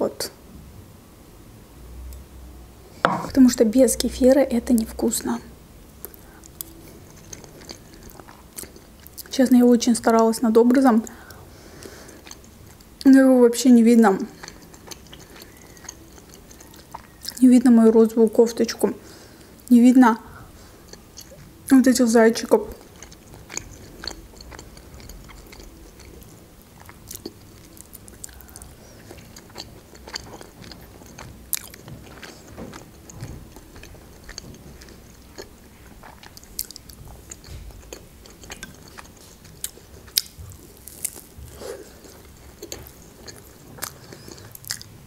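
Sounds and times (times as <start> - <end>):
close-miked chewing of soft food: 5.9 - 9.4, 11.0 - 13.1, 14.0 - 17.5, 20.3 - 21.7, 22.4 - 45.0.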